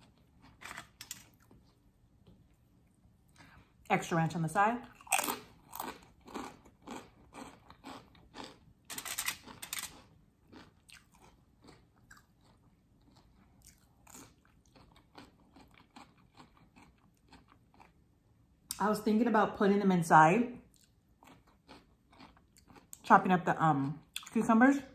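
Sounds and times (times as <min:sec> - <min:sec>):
crunchy chewing: 0:04.9 - 0:18.0, 0:20.7 - 0:23.0.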